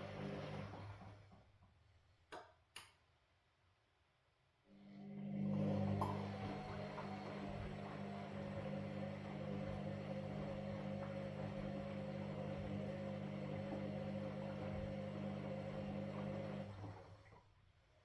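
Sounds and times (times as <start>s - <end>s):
washing machine humming: 0.0s - 1.4s, 5.0s - 17.5s.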